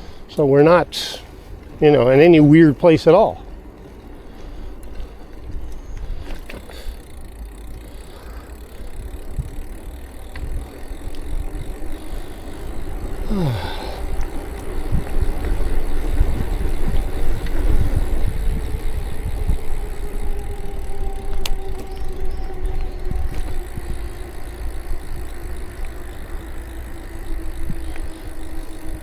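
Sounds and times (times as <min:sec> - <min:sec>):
road rumble: 0:00.0 - 0:29.0
steady hum: 0:06.1 - 0:29.0
wind on microphone: 0:08.7 - 0:29.0.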